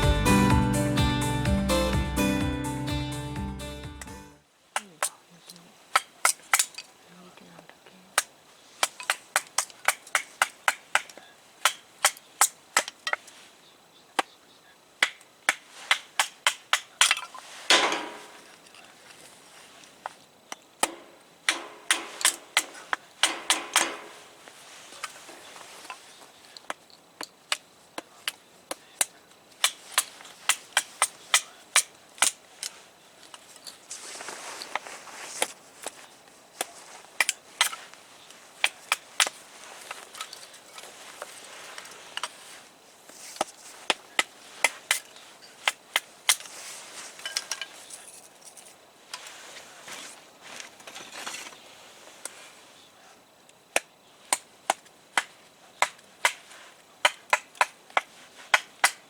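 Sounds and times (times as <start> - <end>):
campfire crackling: 4.4 - 59.0.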